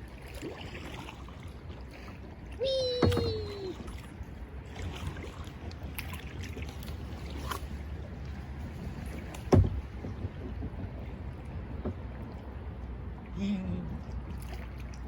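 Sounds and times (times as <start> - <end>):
paddle splashes and drips: 0.0 - 15.0
wind on microphone: 7.0 - 14.3.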